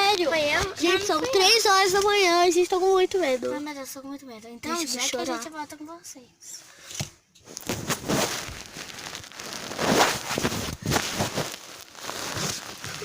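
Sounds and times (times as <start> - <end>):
rustling and crackling: 7.0 - 13.0.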